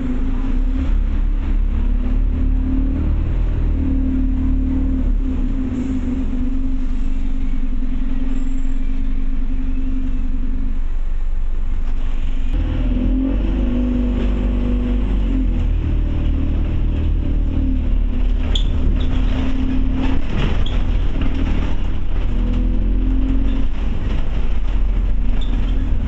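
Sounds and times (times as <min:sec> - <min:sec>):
bus diesel engine: 0:00.0 - 0:26.0.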